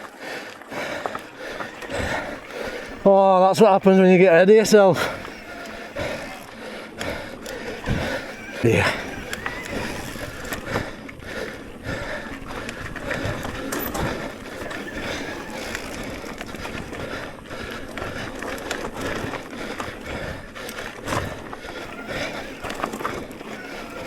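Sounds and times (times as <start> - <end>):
bike rattling over bumps: 0.0 - 24.0
bike tyres rushing on dirt: 0.0 - 24.0.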